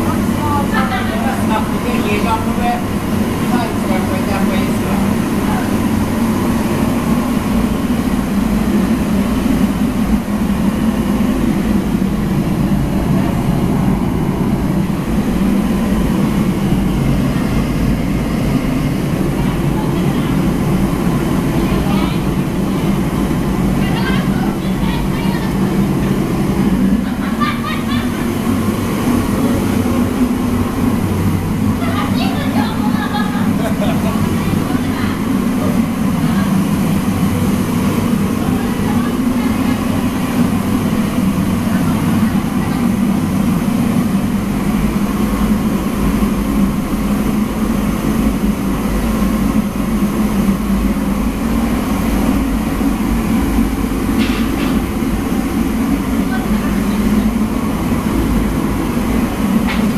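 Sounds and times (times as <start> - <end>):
voices: 0.0 - 7.4, 12.9 - 44.6, 52.7 - 59.9
loud mechanical drone: 0.0 - 59.9.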